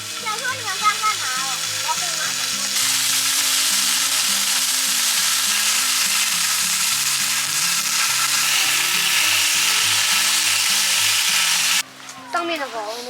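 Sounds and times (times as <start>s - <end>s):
food sizzling on a hot griddle: 0.0s - 11.9s
background music: 0.0s - 13.0s.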